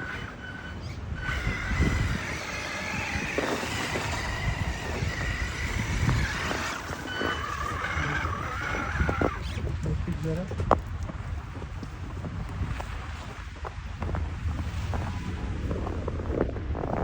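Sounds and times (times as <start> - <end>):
rc car electric motor whining: 0.0 - 9.8
rushing noise and low rumble: 1.0 - 17.0.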